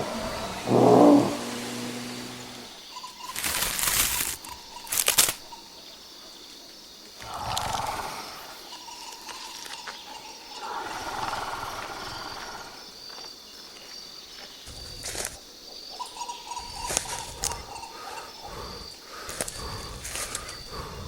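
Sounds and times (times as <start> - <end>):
rough animal growl: 0.0 - 2.8, 7.2 - 8.6
insects chirping: 0.0 - 21.0.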